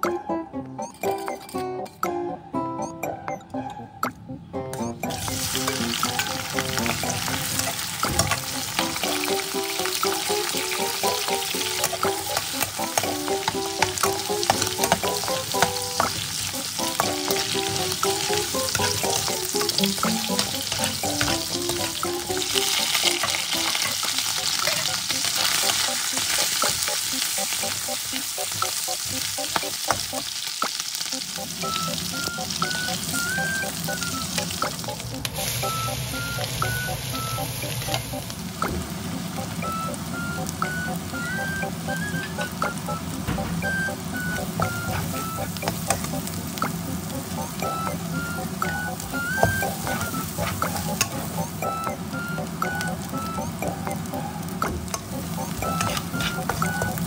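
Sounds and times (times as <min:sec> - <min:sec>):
food frying in hot oil: 0:05.1 - 0:57.0
metal spatula scraping pan: 0:55.8 - 0:56.6.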